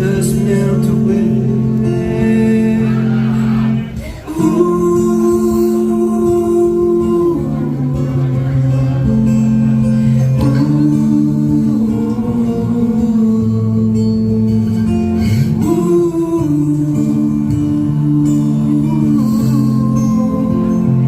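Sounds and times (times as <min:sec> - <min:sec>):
rock band playing slow ballad: 0:00.0 - 0:21.0.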